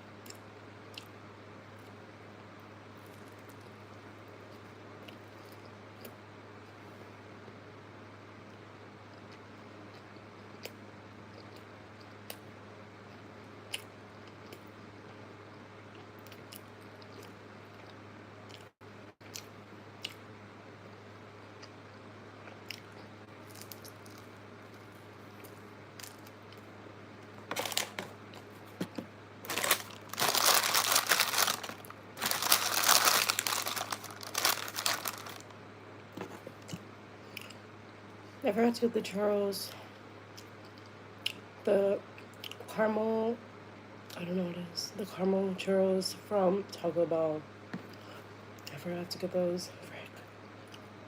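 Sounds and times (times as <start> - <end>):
low steady hum: 0.0 - 51.0
food packaging crinkling: 27.5 - 35.6.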